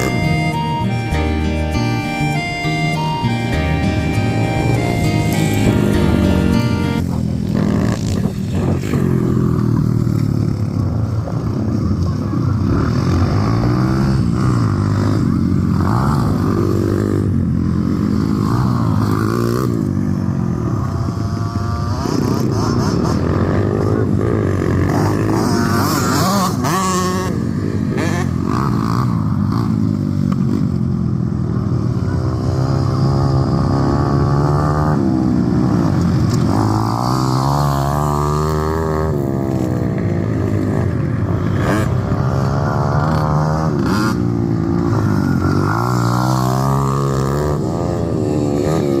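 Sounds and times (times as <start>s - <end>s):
pit bike engine revving: 0.0s - 10.9s, 20.8s - 30.1s.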